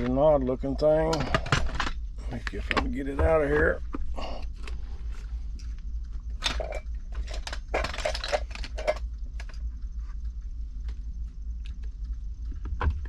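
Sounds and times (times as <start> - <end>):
low hum: 0.0 - 13.0
metal parts clicking and scraping: 1.0 - 3.8, 4.4 - 9.7.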